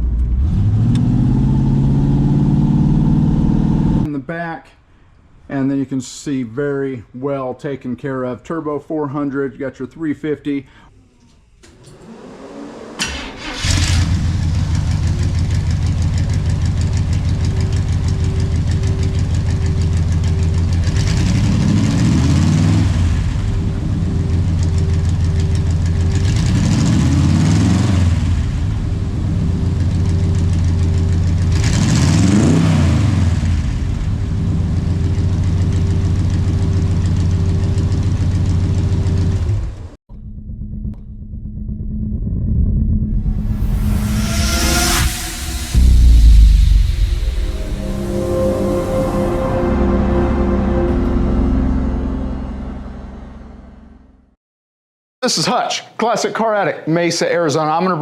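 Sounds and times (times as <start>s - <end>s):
car engine starting: 0.0s - 4.1s, 11.6s - 39.9s
car engine idling: 13.1s - 21.3s.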